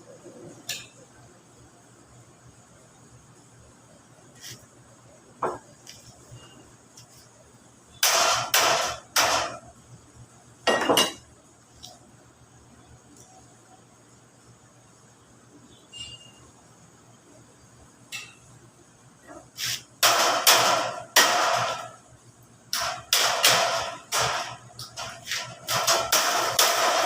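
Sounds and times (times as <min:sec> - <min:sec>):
hammer banging sheet metal: 0:08.0 - 0:09.6, 0:19.6 - 0:22.0, 0:22.7 - 0:27.0
high hiss: 0:19.5 - 0:19.9.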